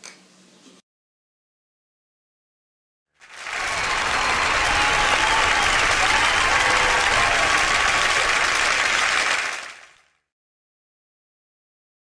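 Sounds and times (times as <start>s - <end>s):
crowd applauding: 3.2s - 10.2s.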